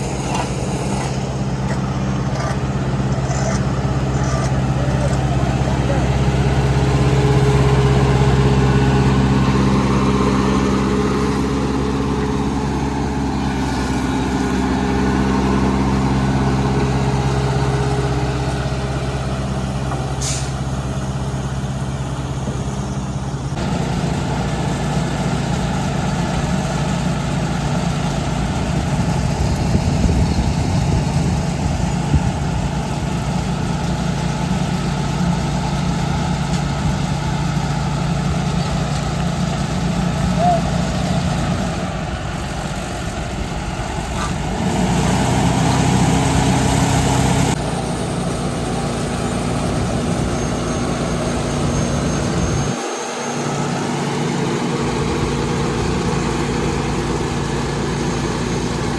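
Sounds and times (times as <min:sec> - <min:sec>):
heavy diesel engines running: 0:00.0 - 0:58.9
rough noisy engine running: 0:00.0 - 0:58.9
brief hiss: 0:20.2 - 0:20.6.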